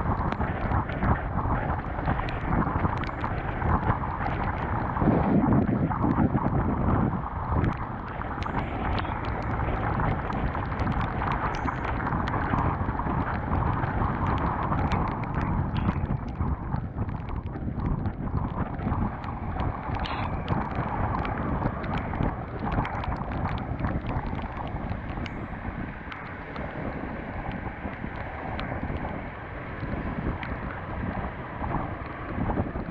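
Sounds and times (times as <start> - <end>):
tyres on wet road: 0.0 - 32.9
wind rushing over microphone: 0.0 - 32.9
small sharp ticks: 1.8 - 5.0, 7.6 - 29.2.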